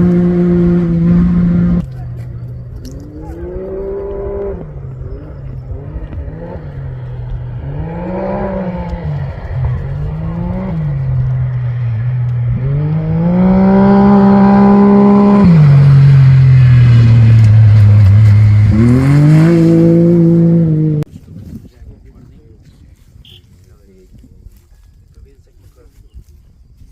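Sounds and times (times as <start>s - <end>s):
engine revving and shifting gears: 0.0s - 21.1s.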